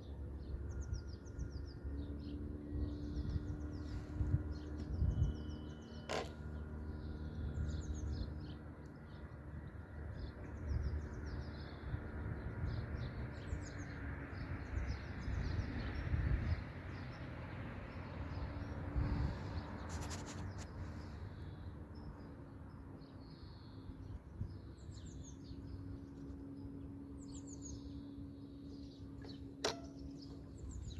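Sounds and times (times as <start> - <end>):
small birds chirping: 18.3 - 30.9.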